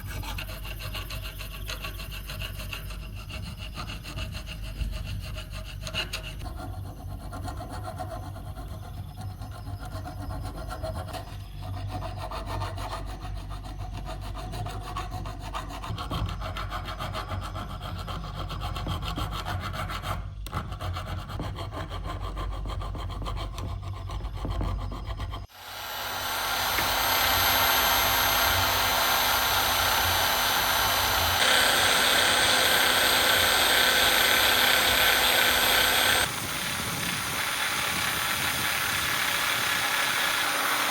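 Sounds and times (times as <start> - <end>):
hand saw scraping: 0.0 - 36.4
power tool humming and whining: 25.4 - 40.9.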